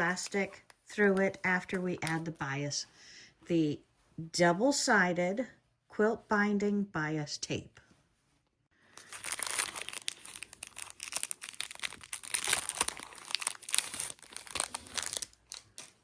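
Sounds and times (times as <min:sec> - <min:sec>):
plastic wrapping crinkling: 0:08.9 - 0:16.0.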